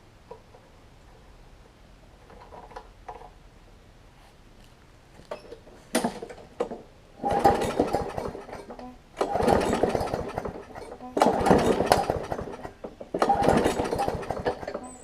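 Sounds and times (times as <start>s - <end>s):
lawn mower engine cranking: 2.2s - 3.4s, 5.3s - 15.0s.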